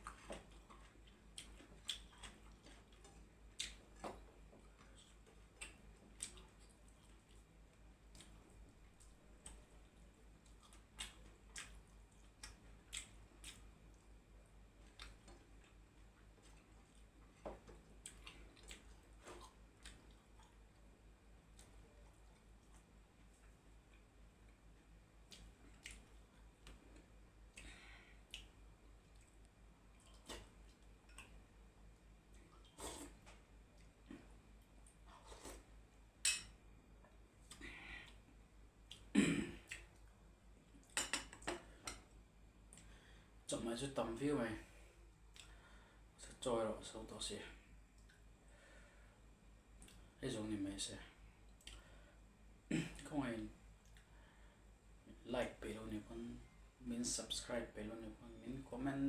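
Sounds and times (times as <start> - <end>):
person chewing: 0.0 - 7.5, 8.1 - 14.1, 14.8 - 20.7, 25.2 - 31.4, 32.3 - 35.8, 38.8 - 40.1.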